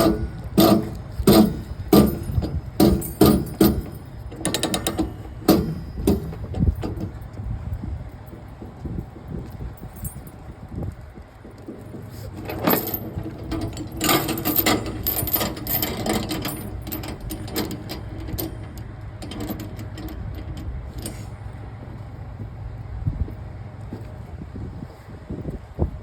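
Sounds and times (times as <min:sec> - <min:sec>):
metallic clicks and rattles: 0:00.0 - 0:07.4, 0:11.7 - 0:21.2
low engine hum: 0:00.0 - 0:26.0.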